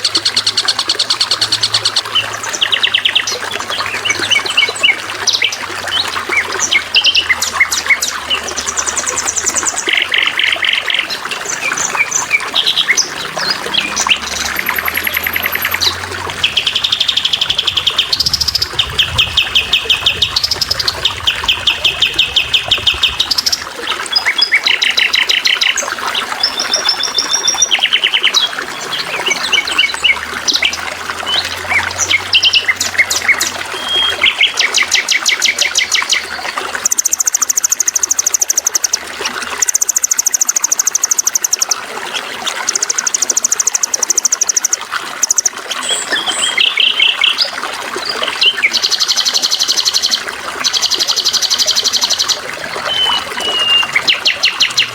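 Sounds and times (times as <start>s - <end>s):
songbirds trilling: 0.0s - 54.9s
water trickling: 0.0s - 54.9s.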